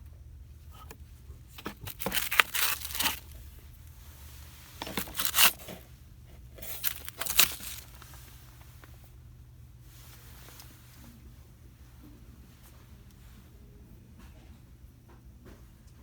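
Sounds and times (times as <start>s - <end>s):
crinkly packaging being handled: 0.8s - 8.9s.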